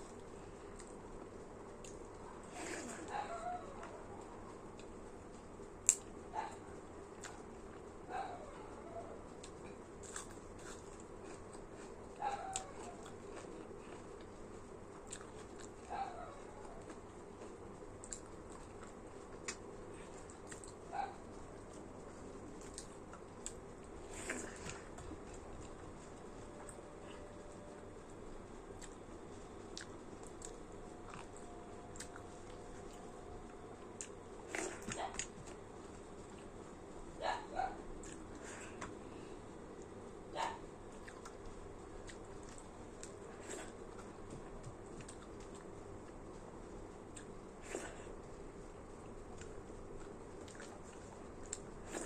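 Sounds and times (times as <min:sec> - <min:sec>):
chewing with mouth clicks: 0:09.4 - 0:15.9, 0:16.8 - 0:20.8, 0:29.7 - 0:33.1, 0:41.0 - 0:46.4, 0:49.3 - 0:52.0
chewing and biting clicks: 0:16.8 - 0:19.6, 0:49.3 - 0:52.0.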